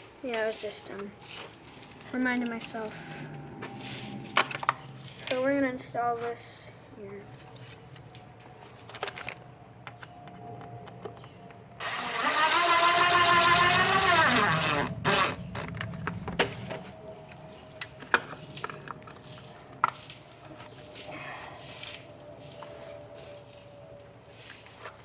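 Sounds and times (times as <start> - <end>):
cordless drill motor whine: 11.8 - 15.8.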